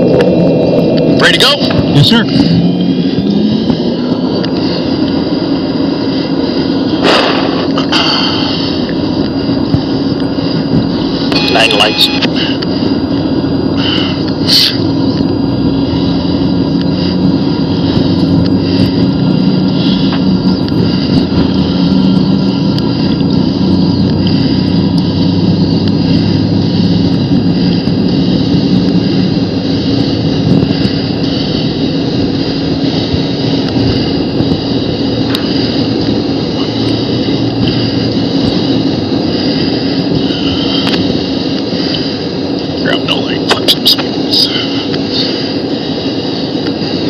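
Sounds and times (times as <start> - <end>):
jet engine drone: 0.0 - 47.0
short hiss: 7.0 - 8.7, 13.8 - 14.9.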